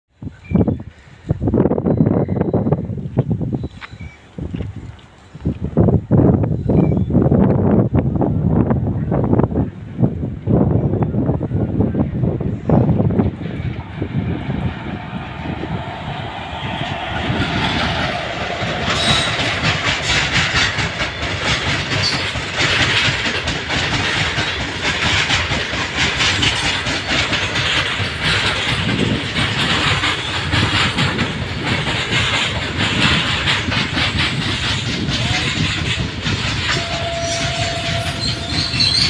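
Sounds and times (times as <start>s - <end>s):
electric locomotive passing: 7.6s - 39.0s
freight wagons wheels clattering: 15.8s - 39.0s.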